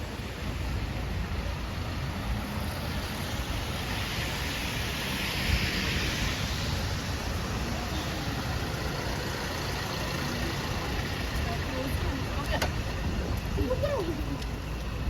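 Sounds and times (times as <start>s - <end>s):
tyre hiss on wet road: 0.0s - 11.0s
traffic rumble: 0.0s - 15.0s.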